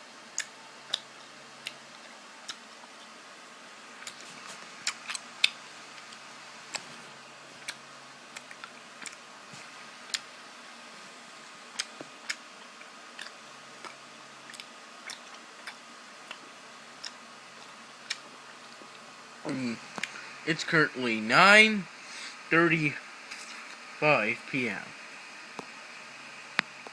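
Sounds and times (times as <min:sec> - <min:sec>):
person chewing candy: 0:00.3 - 0:03.1, 0:04.0 - 0:07.0, 0:11.7 - 0:19.1, 0:23.3 - 0:24.0.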